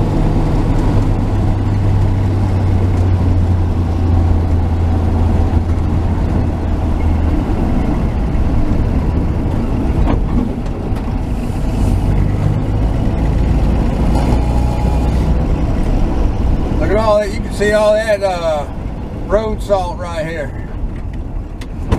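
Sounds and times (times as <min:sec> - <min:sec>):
truck engine running: 0:00.0 - 0:19.6
road noise: 0:00.0 - 0:21.9
short squeak: 0:14.1 - 0:15.4.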